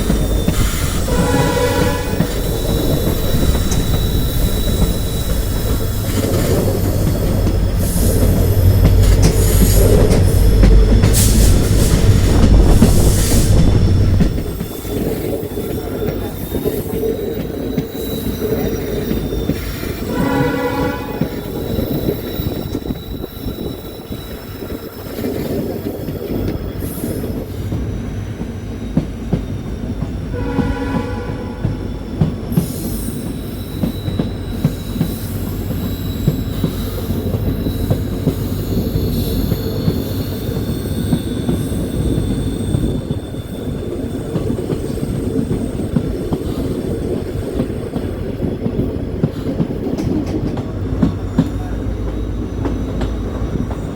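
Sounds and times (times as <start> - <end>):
train rumbling on rails: 0.0 - 53.9
train horn blasts: 0.9 - 2.7, 20.0 - 21.8, 30.3 - 31.9.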